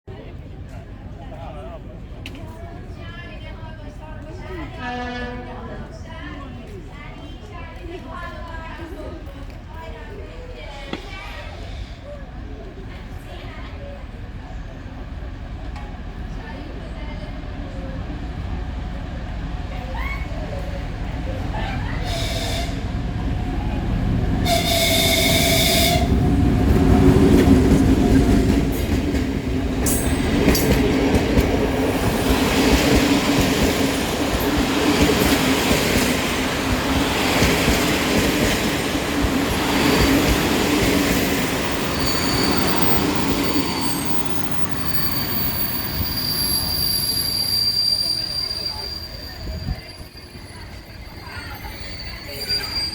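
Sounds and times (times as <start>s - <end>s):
train rumbling past: 0.2s - 52.9s
train horn blast: 4.7s - 5.9s, 22.1s - 22.9s, 24.4s - 26.2s
diesel locomotive engine drone: 11.6s - 47.7s
wheel and brake squeal: 41.7s - 52.9s.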